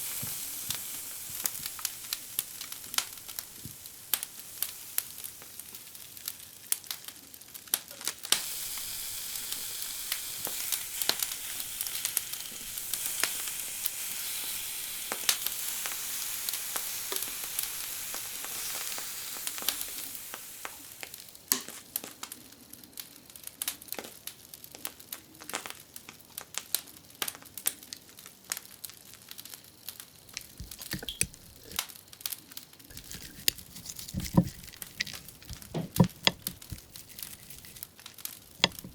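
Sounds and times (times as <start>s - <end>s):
food frying and sizzling: 0.0s - 23.0s, 29.4s - 38.9s
crinkling: 30.3s - 31.9s, 32.9s - 38.9s.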